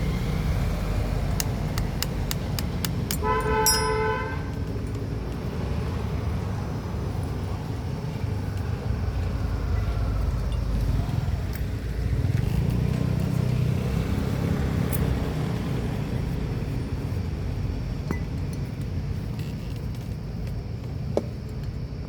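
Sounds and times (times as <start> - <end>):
faint clinks: 2.9 - 5.1.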